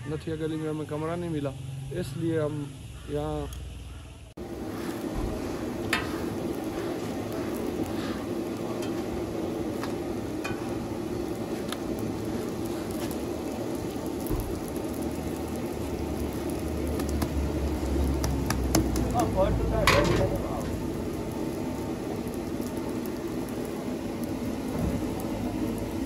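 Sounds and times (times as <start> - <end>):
flatbread sizzling in oil: 4.3 - 26.0.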